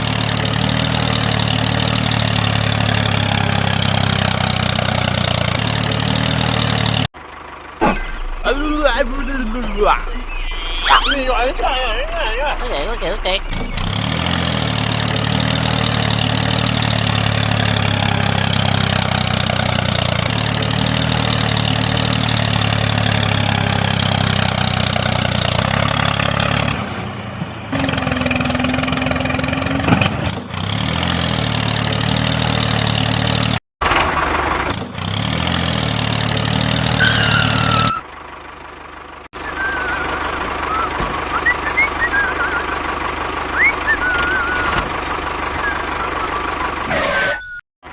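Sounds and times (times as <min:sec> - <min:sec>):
small tractor motor running: 0:00.0 - 0:08.6, 0:12.5 - 0:46.9.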